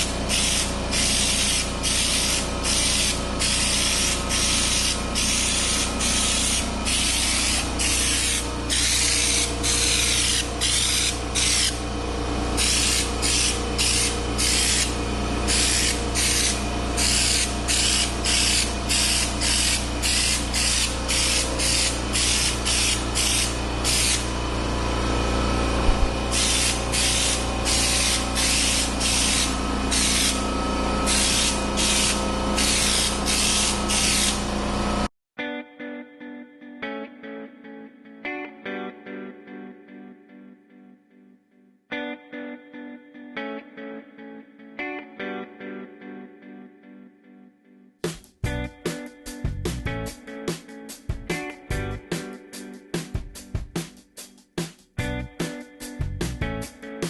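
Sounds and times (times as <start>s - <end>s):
spray gun hissing: 0.0s - 11.8s, 12.6s - 24.3s, 25.9s - 34.5s
steady low hum: 0.0s - 35.1s.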